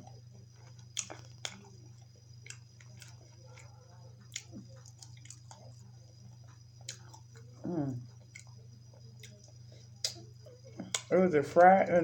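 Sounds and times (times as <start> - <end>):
person chewing food: 0.0 - 11.2
steady low hum: 0.0 - 12.0.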